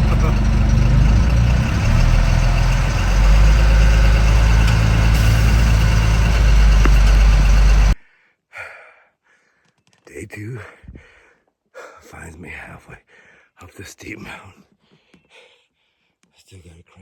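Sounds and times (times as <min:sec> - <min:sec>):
truck engine humming: 0:00.0 - 0:08.0.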